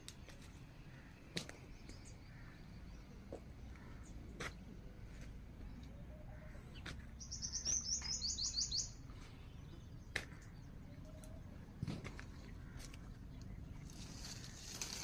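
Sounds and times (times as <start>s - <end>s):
songbird trilling: 7.2s - 9.0s.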